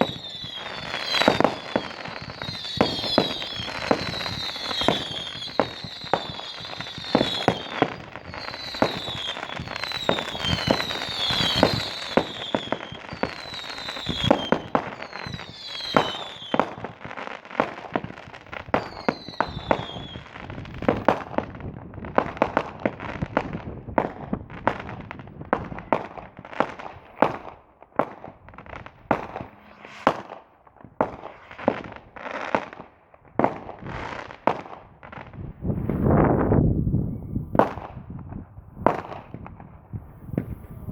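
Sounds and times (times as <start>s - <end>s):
falling firework whistles: 0.0s - 21.2s, 25.6s - 32.8s, 40.0s - 40.9s
fireworks bangs: 0.0s - 40.9s.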